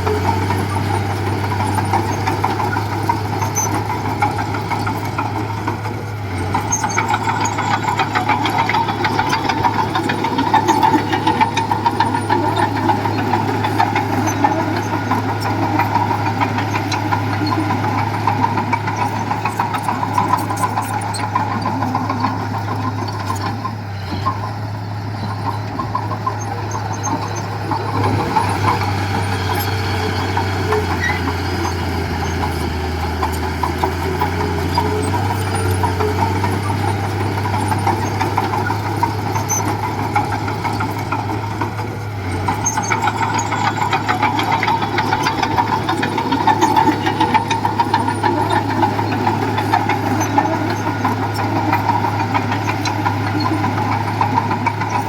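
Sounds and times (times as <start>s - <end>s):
heavy diesel engine clattering: 0.0s - 55.0s.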